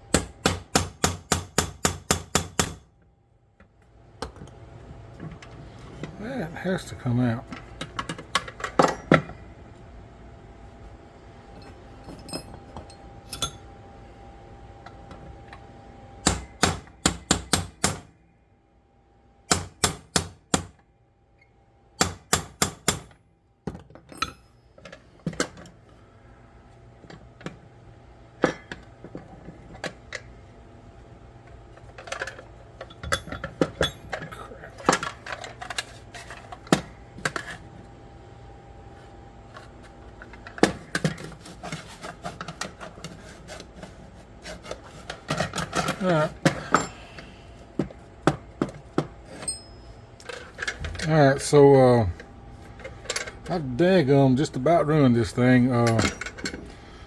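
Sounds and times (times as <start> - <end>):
hammer striking punch on metal: 0.1 - 2.9, 16.2 - 18.1, 19.5 - 20.8, 22.0 - 23.1.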